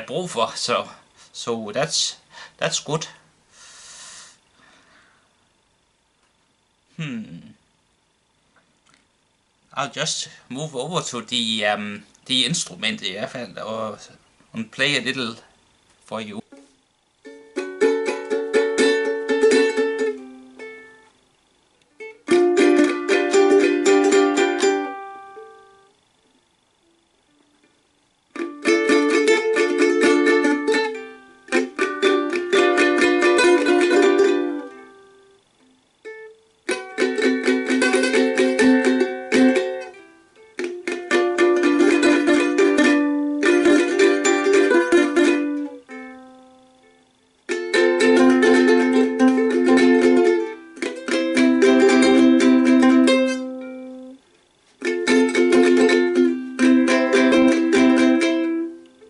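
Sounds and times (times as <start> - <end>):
plucked string instrument strumming: 16.5 - 21.1, 21.9 - 25.9, 28.3 - 35.4, 36.0 - 54.2, 54.8 - 59.0.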